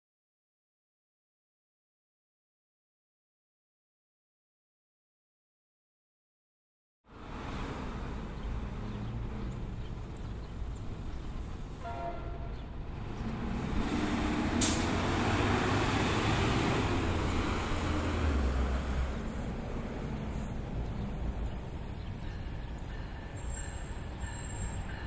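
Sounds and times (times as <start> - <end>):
passenger train rumbling past: 7.2 - 25.0.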